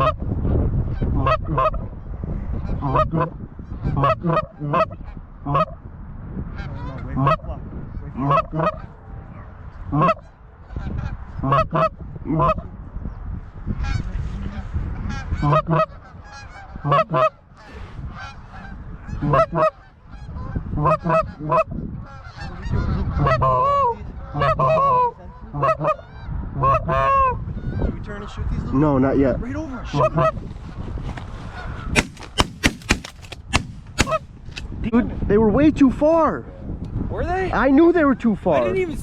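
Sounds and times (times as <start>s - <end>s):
geese honking: 13.8s - 27.2s, 31.6s - 34.2s.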